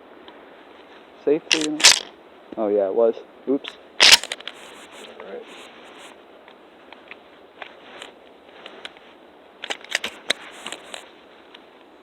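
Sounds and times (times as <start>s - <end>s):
gun clicks and clacks: 1.5s - 2.1s, 4.0s - 4.6s, 9.6s - 10.8s.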